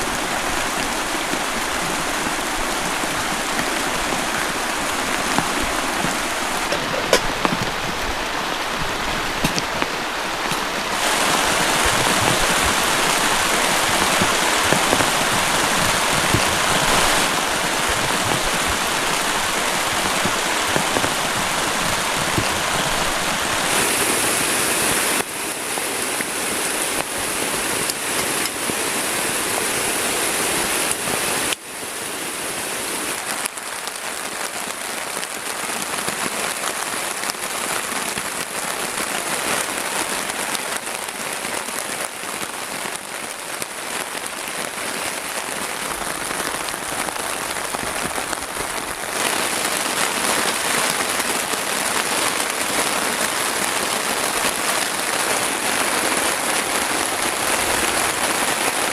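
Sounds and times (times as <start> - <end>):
heavy rain falling: 0.0 - 58.9.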